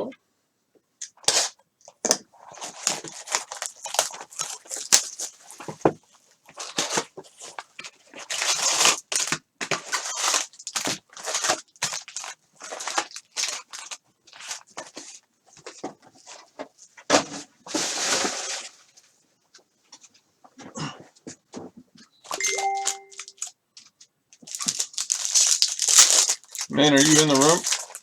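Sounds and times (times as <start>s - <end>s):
wrappers crinkling and tearing: 1.1s - 16.4s, 22.3s - 28.0s.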